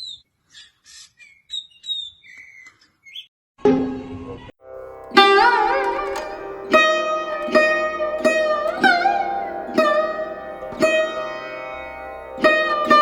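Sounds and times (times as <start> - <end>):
plucked string instrument music: 4.6 - 13.0.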